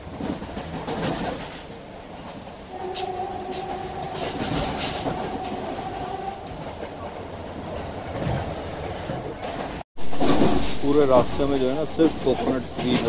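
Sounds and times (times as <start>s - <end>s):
train wheels rumbling and rattling: 0.0s - 13.0s.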